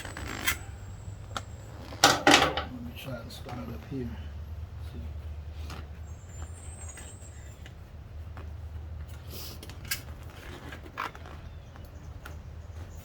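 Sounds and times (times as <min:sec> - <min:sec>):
plastic scrape: 0:09.7 - 0:11.6.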